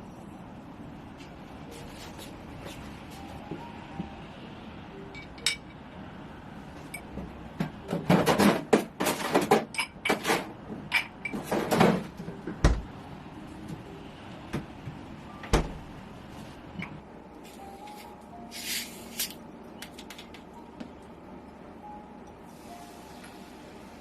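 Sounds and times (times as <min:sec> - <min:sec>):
clatter and rustling: 0:07.6 - 0:12.4.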